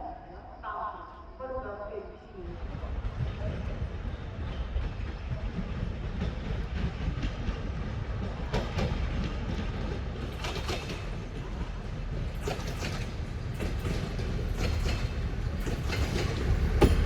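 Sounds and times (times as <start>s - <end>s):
train rumbling: 2.2s - 17.0s
wheel clacks over rail joints: 8.3s - 17.0s.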